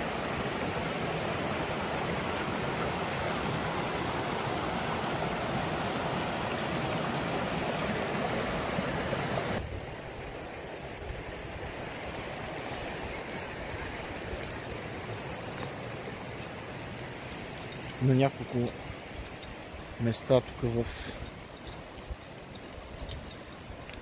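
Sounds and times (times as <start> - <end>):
water rushing over rocks: 0.0 - 24.0
faint ticks: 15.3 - 16.6, 17.2 - 20.1, 20.8 - 24.0.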